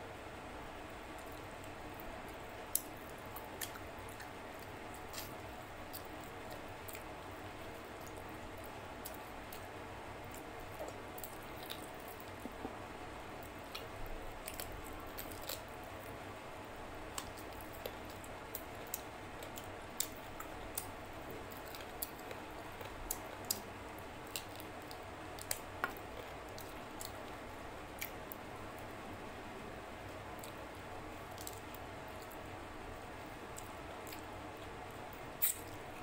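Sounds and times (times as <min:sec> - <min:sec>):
steady low hiss: 0:00.0 - 0:36.0
chewing and mouth smacking: 0:01.2 - 0:16.2, 0:17.1 - 0:28.4, 0:35.4 - 0:36.0.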